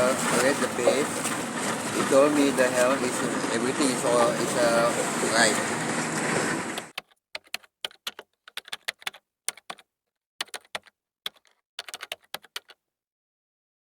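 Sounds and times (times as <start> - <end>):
keyboard typing clicks: 6.8 - 12.8.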